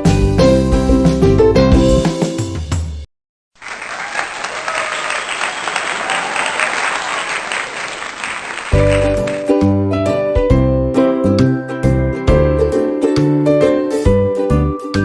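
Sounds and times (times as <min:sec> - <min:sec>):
crowd applauding: 0:03.6 - 0:09.6
upbeat children's piano music: 0:08.7 - 0:09.8.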